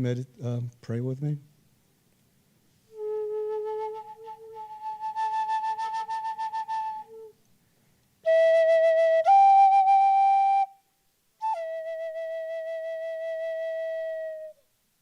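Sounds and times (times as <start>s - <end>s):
flute playing slow held notes: 2.9s - 7.4s, 8.2s - 10.8s, 11.4s - 14.6s.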